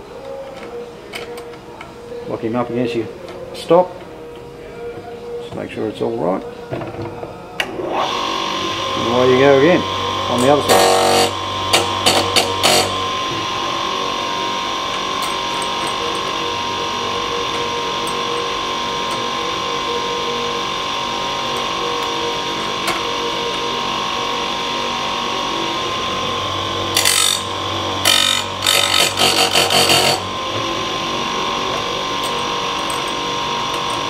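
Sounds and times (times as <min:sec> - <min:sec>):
grinder whining: 0:07.8 - 0:34.0
grinding wheel on metal: 0:09.0 - 0:24.0, 0:26.8 - 0:34.0.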